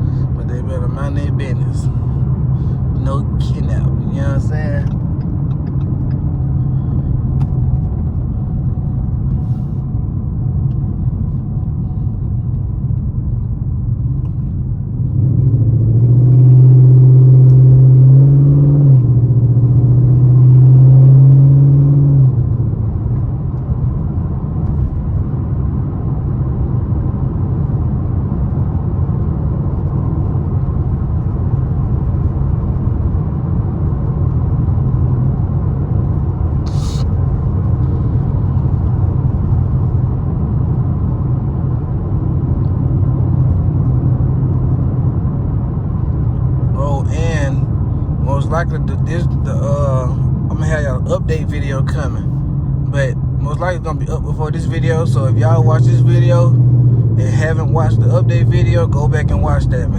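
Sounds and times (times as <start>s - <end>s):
car engine cruising: 0.0s - 59.9s
car engine revving under throttle: 13.7s - 25.0s, 34.3s - 59.9s.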